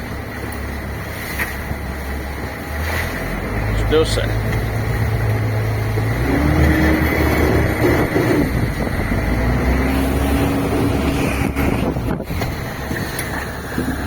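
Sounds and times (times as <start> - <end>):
boat engine running: 0.0 - 14.0
water noise: 0.0 - 14.0
wind: 0.0 - 14.0.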